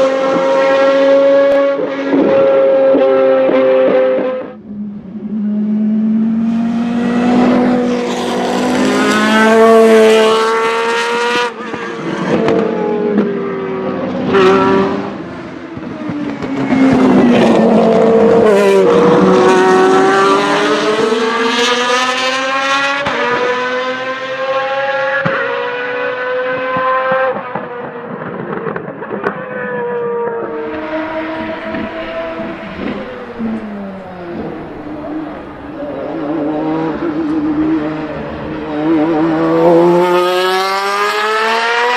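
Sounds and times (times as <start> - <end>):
race car engine revving: 0.0 - 41.9.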